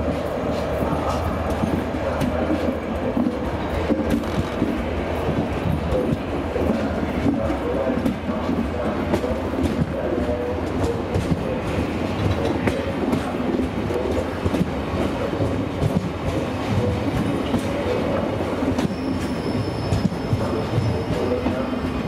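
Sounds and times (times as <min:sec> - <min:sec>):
train coaches rumbling: 0:00.0 - 0:22.0
high wheel squeal: 0:18.8 - 0:21.4.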